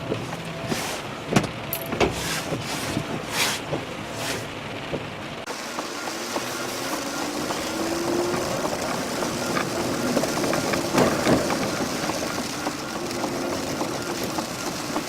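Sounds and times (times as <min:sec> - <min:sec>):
road and rain noise: 0:00.0 - 0:15.0
vehicle engine accelerating: 0:05.5 - 0:15.0.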